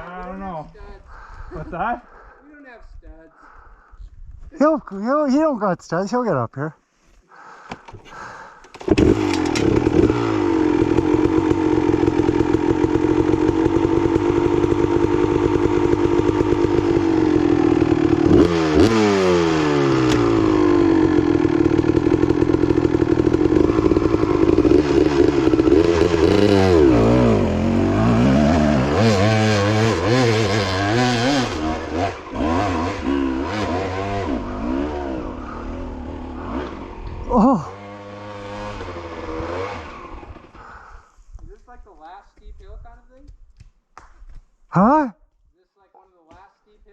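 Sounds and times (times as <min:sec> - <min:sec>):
dirt bike engine revving: 0:08.7 - 0:40.9.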